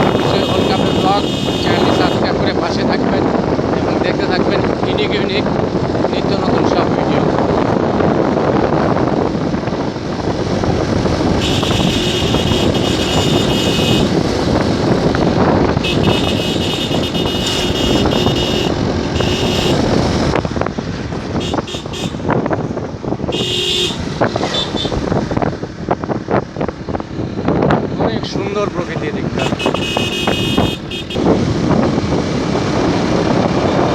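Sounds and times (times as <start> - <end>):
high horn tone: 0.0 - 2.3, 11.4 - 14.2, 15.8 - 19.9, 21.4 - 22.4, 23.3 - 25.0, 29.4 - 31.2
wind noise: 0.0 - 33.9
motorcycle engine running: 10.8 - 20.5.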